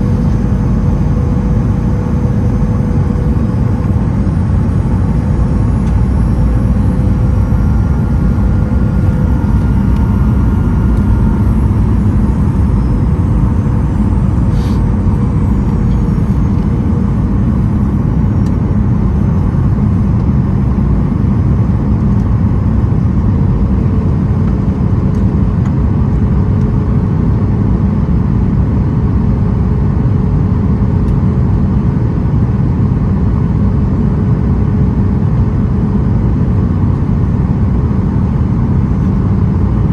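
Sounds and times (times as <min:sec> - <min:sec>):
faint engine tones: 0:00.0 - 0:22.3
jet engine roar inside cabin: 0:00.0 - 0:39.9.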